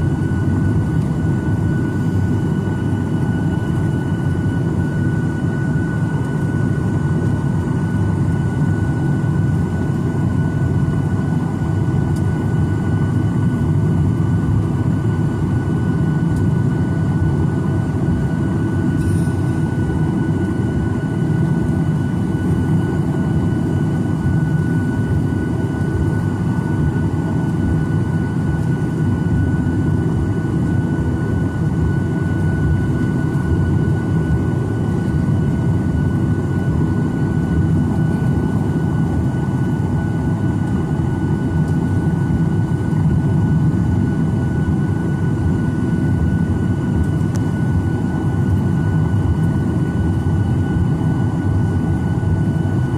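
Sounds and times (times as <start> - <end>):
jet engine roar in cabin: 0.0 - 52.9
thin high whine: 19.0 - 19.9.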